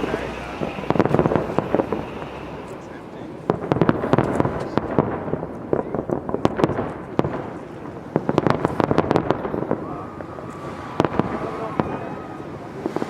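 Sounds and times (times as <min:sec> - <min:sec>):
steady rumble: 0:00.0 - 0:05.7
fireworks bangs and crackles: 0:00.0 - 0:13.0.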